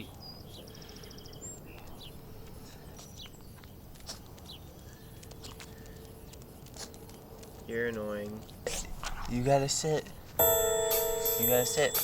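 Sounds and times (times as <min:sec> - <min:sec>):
birds chirping and trilling: 0:00.0 - 0:03.8
low background noise: 0:00.0 - 0:12.0.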